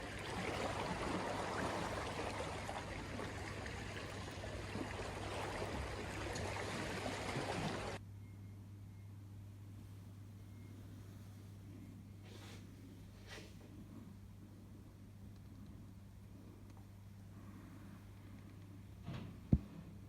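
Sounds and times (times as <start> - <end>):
rainwater rushing across road: 0.0 - 8.0.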